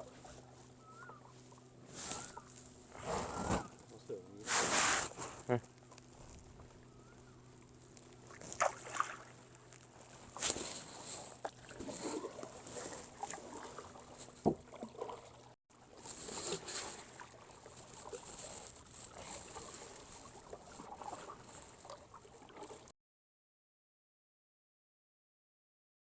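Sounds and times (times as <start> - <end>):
paddle splashing in water: 8.2 - 22.9.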